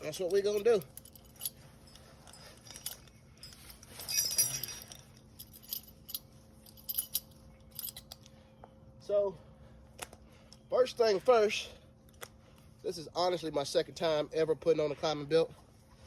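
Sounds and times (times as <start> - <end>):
metal climbing gear jangling: 0.0 - 8.4.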